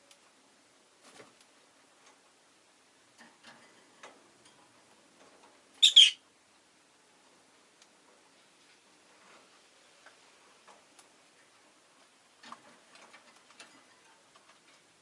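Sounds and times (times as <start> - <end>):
bird double chirp: 5.8 - 6.2
faint clicks and taps: 10.0 - 15.0.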